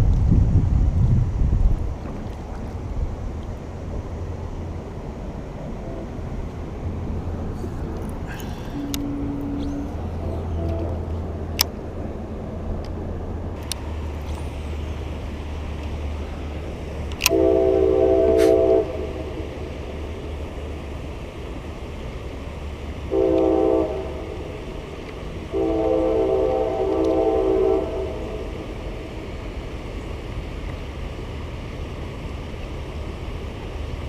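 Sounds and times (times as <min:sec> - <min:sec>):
low hum: 0:00.0 - 0:30.2
train horn blasts: 0:08.7 - 0:11.2, 0:17.2 - 0:19.5, 0:23.1 - 0:24.6, 0:25.5 - 0:28.7
sharp clicks: 0:17.0 - 0:17.4.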